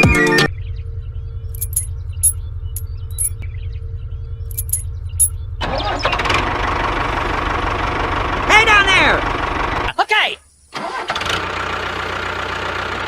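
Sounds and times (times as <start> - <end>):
light metallic clinks: 1.6 - 3.4, 4.5 - 5.3.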